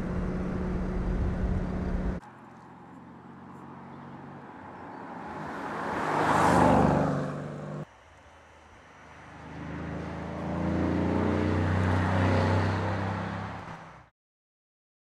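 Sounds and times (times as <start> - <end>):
car engine passing close: 0.0 - 7.9, 8.8 - 13.9.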